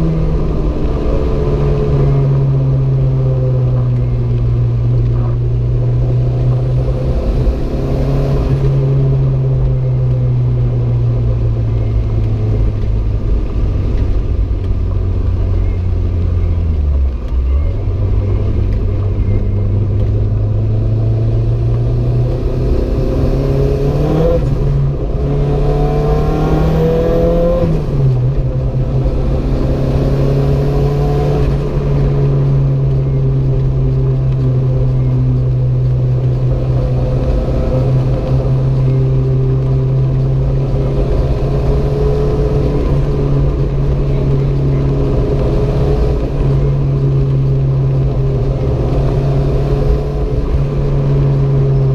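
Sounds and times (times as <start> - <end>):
car engine revving: 0.0 - 51.9.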